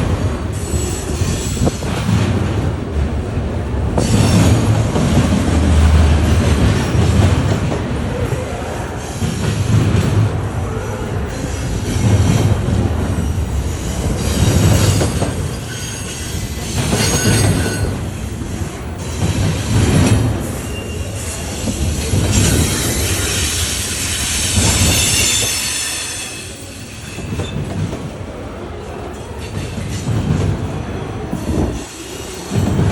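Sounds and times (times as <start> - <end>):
train wheels thumping: 0.0 - 8.4, 11.3 - 28.2, 29.4 - 32.9
metallic wheel squeal: 22.4 - 27.6.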